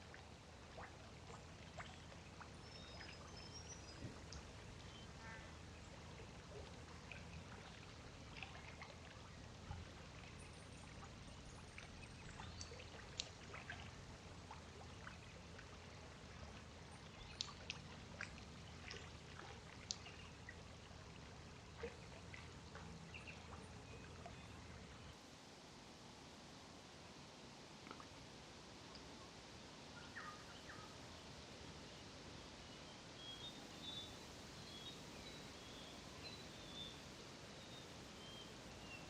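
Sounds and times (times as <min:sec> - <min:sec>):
faint trickling water: 0:00.0 - 0:39.0
small clicks and ticks: 0:12.6 - 0:13.5, 0:17.2 - 0:18.5, 0:19.8 - 0:20.2.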